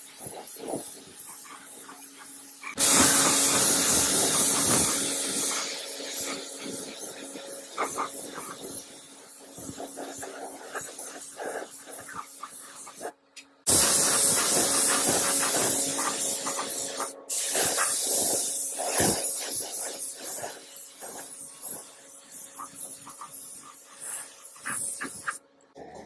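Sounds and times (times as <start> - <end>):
loud spraying hiss: 2.8 - 13.1, 13.7 - 25.4.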